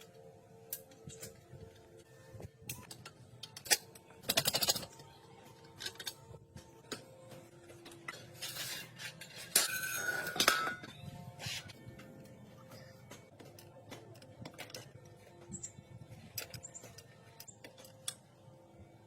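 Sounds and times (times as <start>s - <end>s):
metal tools clinking and scraping: 7.8s - 11.8s.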